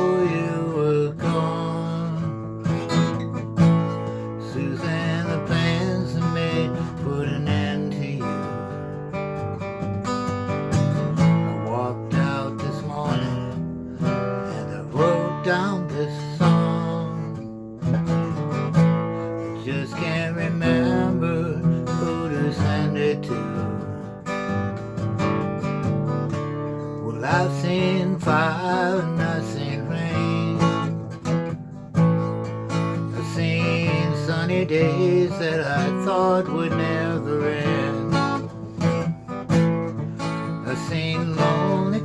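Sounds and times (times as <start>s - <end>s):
person singing: 0.0s - 2.9s, 4.2s - 8.9s, 11.1s - 17.5s, 19.3s - 24.2s, 26.8s - 31.2s, 32.8s - 39.0s, 40.2s - 42.0s
strummed acoustic guitar: 0.0s - 42.0s.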